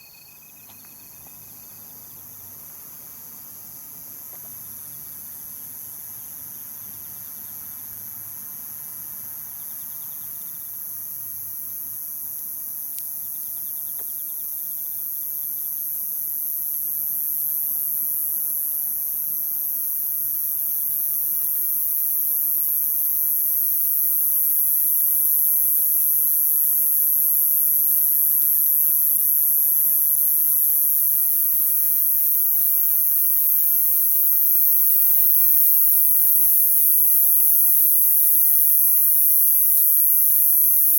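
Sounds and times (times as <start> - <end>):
quick pulsed insect chirps: 0.0 - 2.3, 23.3 - 40.9
crickets trilling: 0.0 - 7.7, 13.4 - 40.9.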